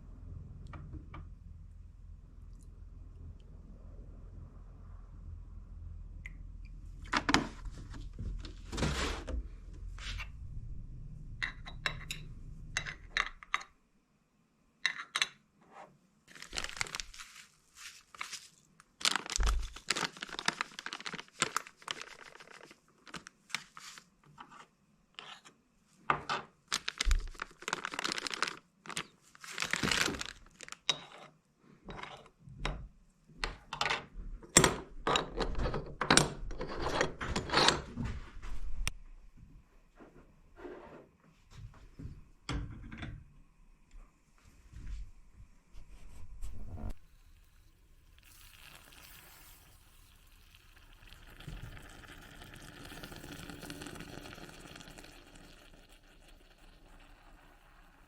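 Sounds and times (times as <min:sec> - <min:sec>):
low hum: 0:00.0 - 0:13.5
rustling and crinkling: 0:07.0 - 0:10.4, 0:16.3 - 0:24.7, 0:26.7 - 0:31.1.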